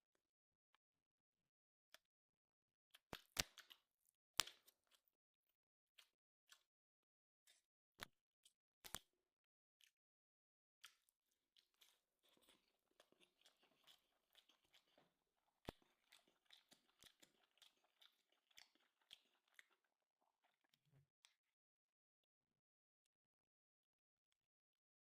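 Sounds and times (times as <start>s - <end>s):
person chewing and crunching: 10.8s - 20.8s.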